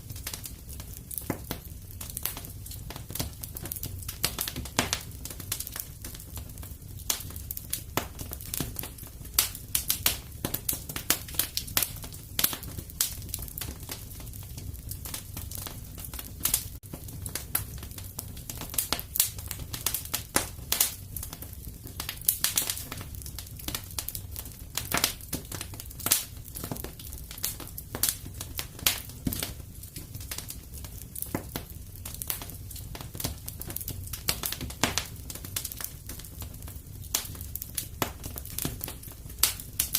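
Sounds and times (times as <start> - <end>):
fire crackling and popping: 0.0 - 39.9.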